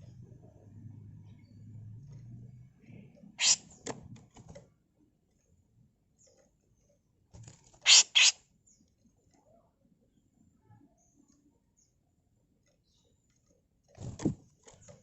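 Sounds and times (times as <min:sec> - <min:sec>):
bird harsh rasping calls: 0:03.4 - 0:03.7, 0:07.8 - 0:08.4.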